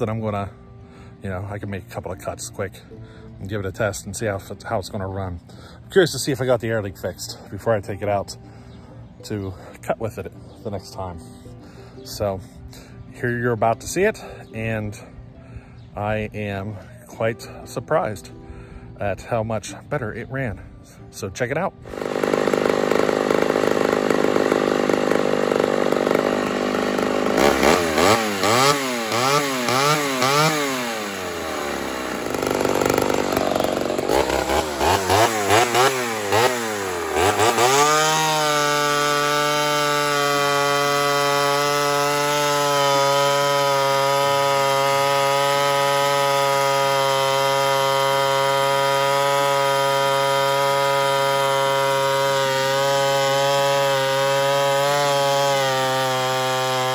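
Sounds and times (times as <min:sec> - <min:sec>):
chainsaw revving: 0:21.8 - 0:56.9.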